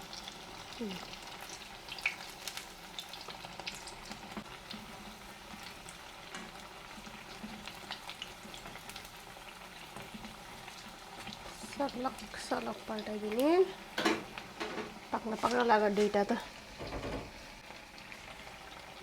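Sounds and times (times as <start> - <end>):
food deep-frying in oil: 0.0 - 19.0.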